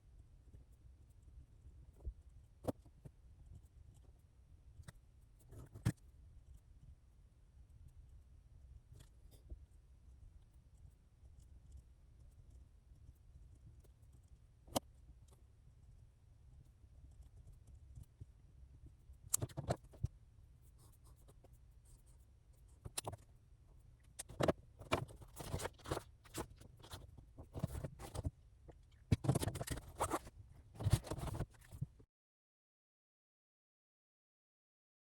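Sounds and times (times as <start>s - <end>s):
pen scratching on paper: 24.2s - 28.3s, 29.1s - 31.8s.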